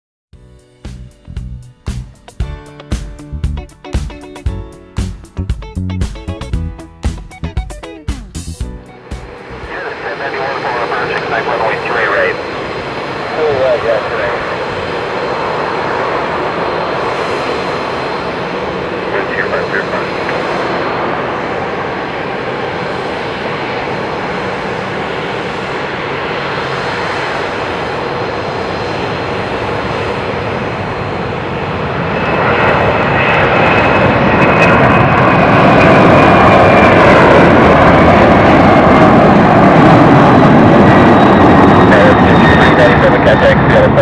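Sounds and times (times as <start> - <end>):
high whine dropping in pitch: 6.2 - 14.9
jet engines at takeoff power: 8.8 - 44.0.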